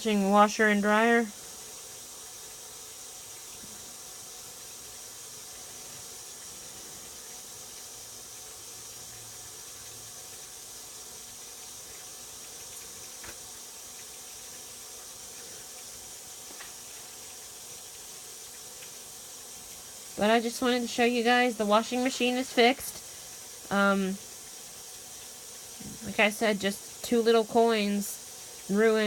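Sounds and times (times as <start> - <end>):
water running into washing machine: 0.0 - 29.0.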